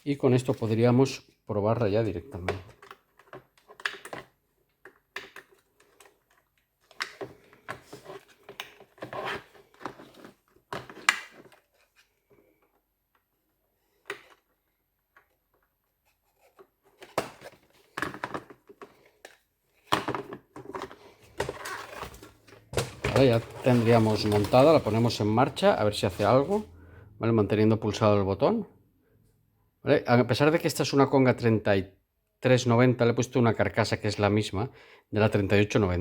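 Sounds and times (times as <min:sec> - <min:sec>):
plastic parts clicking and rattling: 0:02.4 - 0:12.0, 0:16.3 - 0:26.6.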